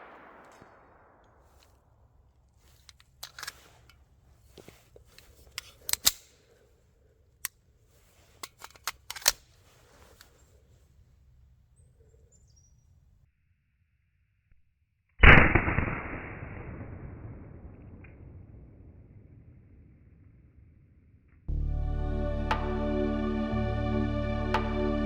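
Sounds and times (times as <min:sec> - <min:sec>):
pistol metallic clicks: 0:02.8 - 0:04.0, 0:05.2 - 0:06.6, 0:08.4 - 0:09.5.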